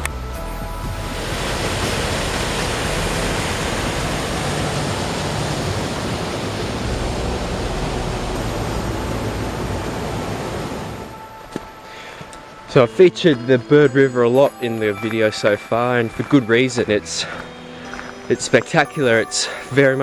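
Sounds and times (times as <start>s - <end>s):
river rushing: 0.6s - 12.6s.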